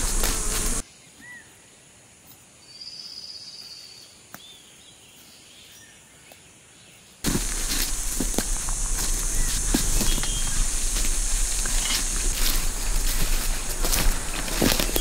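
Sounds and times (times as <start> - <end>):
rushing noise with crackles: 0.0 - 0.8, 7.2 - 15.0
high bird trill: 8.8 - 15.0
bird chirps: 9.3 - 10.7, 14.8 - 15.0.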